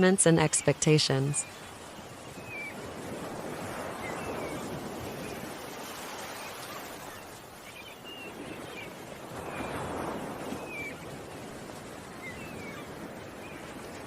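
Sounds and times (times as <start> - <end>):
ocean waves washing: 0.0 - 14.0.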